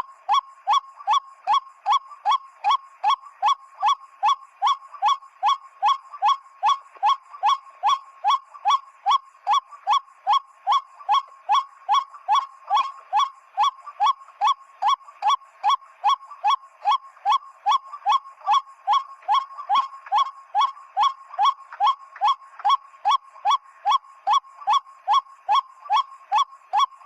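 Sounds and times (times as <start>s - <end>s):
waterhen calling: 0.0s - 27.0s.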